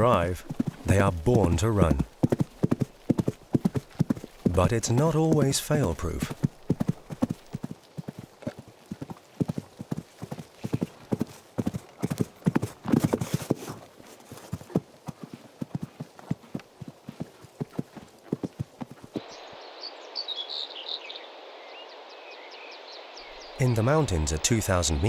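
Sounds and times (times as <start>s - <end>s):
horses galloping: 0.0s - 19.2s
outdoor ambience: 0.0s - 25.0s.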